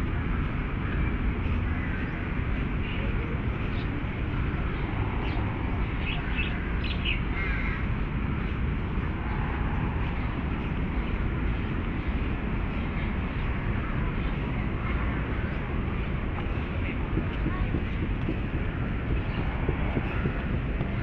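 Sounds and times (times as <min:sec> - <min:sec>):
city traffic rumble: 0:00.0 - 0:21.0
birds calling: 0:00.9 - 0:09.4, 0:16.4 - 0:21.0.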